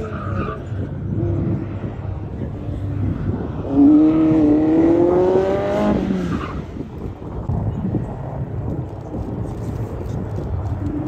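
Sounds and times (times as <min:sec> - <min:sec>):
car engine accelerating: 0:00.0 - 0:07.6.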